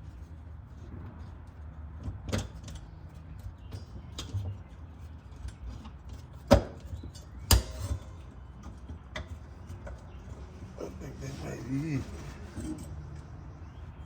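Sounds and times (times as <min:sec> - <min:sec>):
clinks of hand tools and metal: 0:11.8 - 0:13.4.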